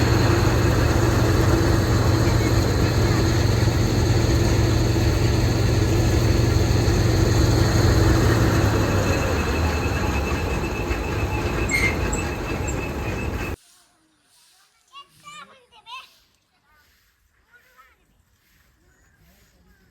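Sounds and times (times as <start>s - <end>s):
machine clatter with high whine: 0.0s - 13.6s.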